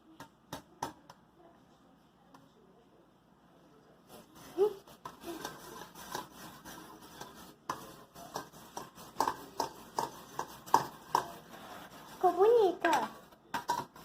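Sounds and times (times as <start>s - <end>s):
utensil scraping in a bowl: 4.0s - 14.0s.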